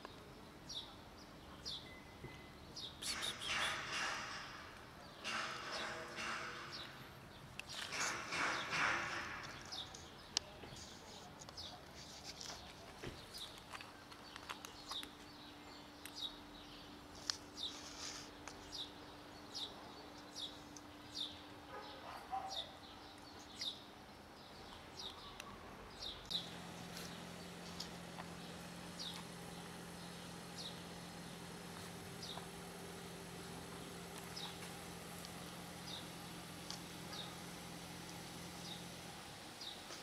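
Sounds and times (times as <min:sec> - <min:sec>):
small bird chirping: 0:09.4 - 0:40.0
cats crunching dry kibble: 0:11.4 - 0:15.2.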